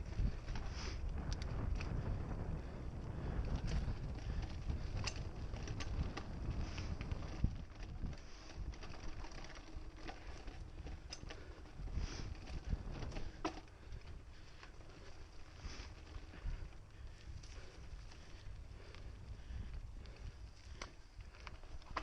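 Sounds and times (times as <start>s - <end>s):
wind on microphone: 0.0s - 9.5s, 10.4s - 14.4s
bike clicks and rattles: 0.0s - 22.0s
bike tyres rumbling on dirt: 0.0s - 22.0s.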